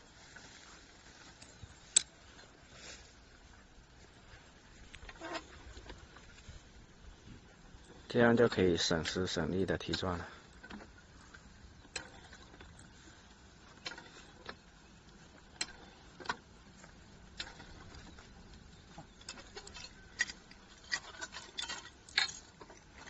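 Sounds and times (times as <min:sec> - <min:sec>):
drilling gear clicks and knocks: 0:07.9 - 0:12.9.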